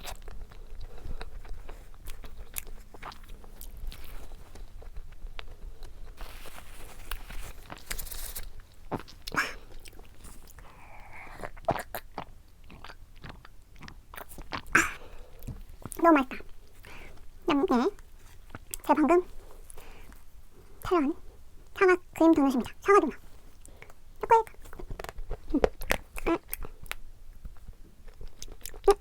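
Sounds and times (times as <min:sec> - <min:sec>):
biting and wet chewing: 0:00.0 - 0:29.0
mouth clicks: 0:08.9 - 0:10.0.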